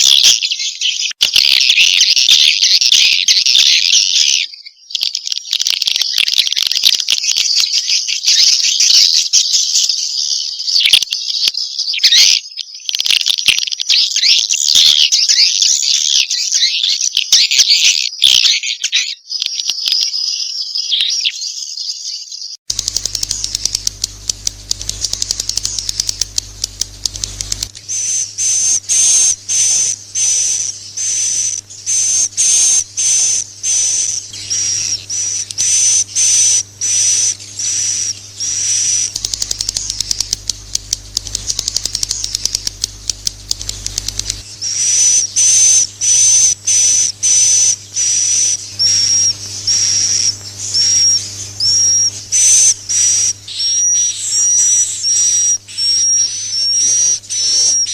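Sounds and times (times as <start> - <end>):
faint low hum: 22.7 - 57.9
swiftlet clicking chirps: 22.7 - 57.9.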